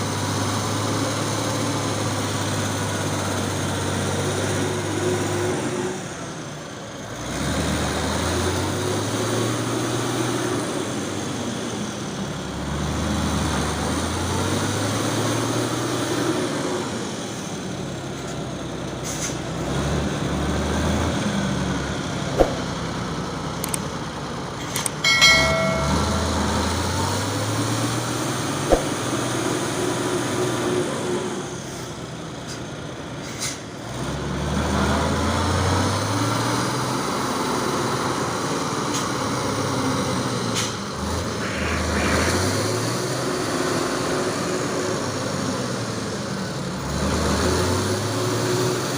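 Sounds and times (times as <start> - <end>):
truck diesel engine revving: 7.1 - 11.2, 19.4 - 24.4, 33.8 - 48.9
short high-pitched tone: 25.0 - 26.7.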